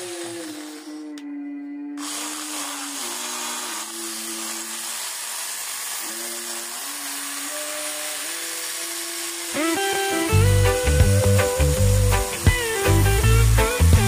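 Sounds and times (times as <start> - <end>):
electric drill whirring: 0.0 - 1.2, 2.0 - 14.0
soft background music: 9.6 - 14.0.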